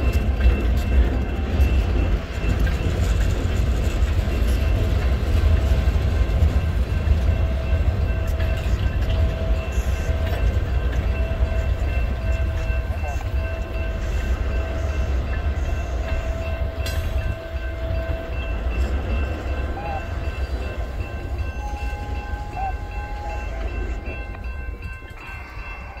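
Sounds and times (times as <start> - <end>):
steel wheels rumbling on rail: 0.0 - 26.0.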